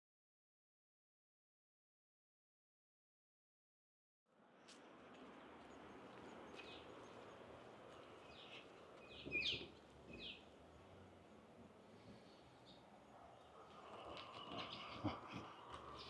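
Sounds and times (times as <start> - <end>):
outdoor background hiss: 4.3 - 16.0
birds chirping faintly: 4.4 - 16.0.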